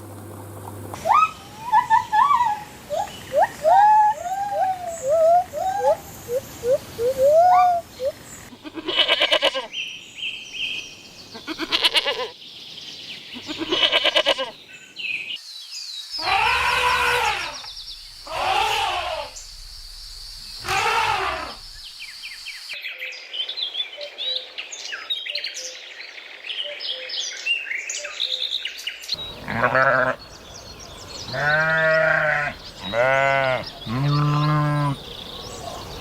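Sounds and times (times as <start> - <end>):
small birds chirping: 1.8 - 9.0, 12.5 - 36.0
livestock bleating: 8.6 - 9.7, 11.4 - 12.3, 13.4 - 14.5, 16.2 - 17.7, 29.4 - 30.2, 31.3 - 35.0.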